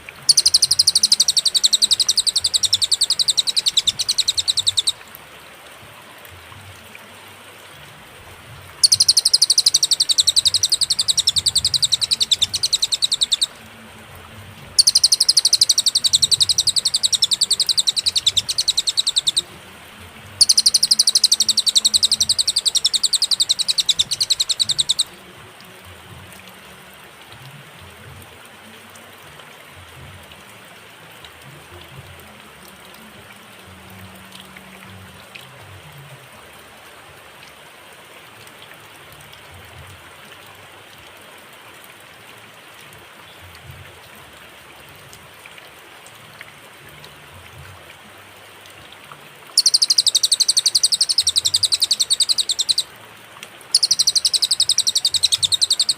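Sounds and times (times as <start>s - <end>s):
faint background hiss: 0.0s - 55.9s
songbird rapid high trill: 0.3s - 5.0s, 8.8s - 13.6s, 14.8s - 19.6s, 20.4s - 25.1s, 49.6s - 52.9s, 53.7s - 55.9s.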